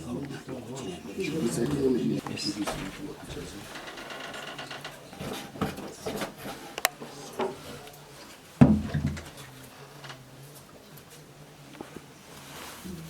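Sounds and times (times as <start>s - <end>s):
knocks and clatter of handling: 2.2s - 7.7s, 8.6s - 10.6s
heavy thump: 8.6s - 9.2s.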